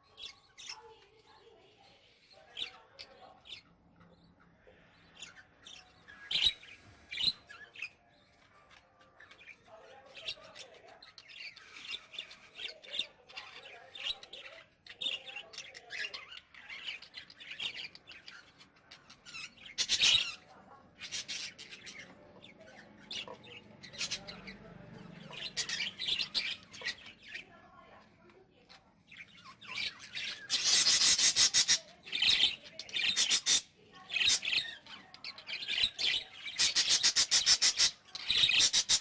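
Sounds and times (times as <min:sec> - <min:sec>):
caged birds chirping and chattering: 0:00.0 - 0:39.0
bird squawks: 0:29.4 - 0:34.9, 0:35.6 - 0:39.0.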